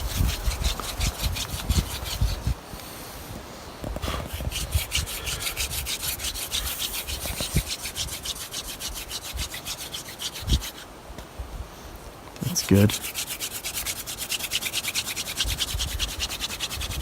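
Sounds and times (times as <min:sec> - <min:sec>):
hand drill rasping on wood: 0:00.0 - 0:02.6, 0:04.0 - 0:10.9, 0:12.5 - 0:17.0.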